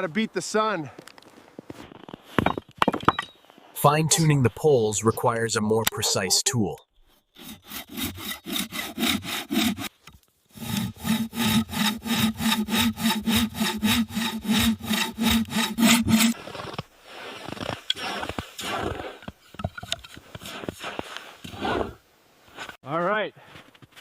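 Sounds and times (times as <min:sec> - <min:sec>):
hand saw cutting wood: 0:07.3 - 0:16.4.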